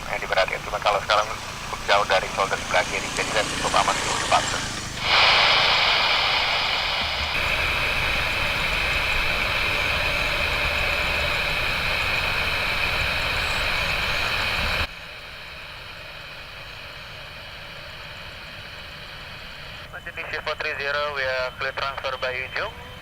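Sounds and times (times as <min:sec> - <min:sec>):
heavy rain hissing: 0:00.0 - 0:16.5
jet engines roaring: 0:00.0 - 0:23.0.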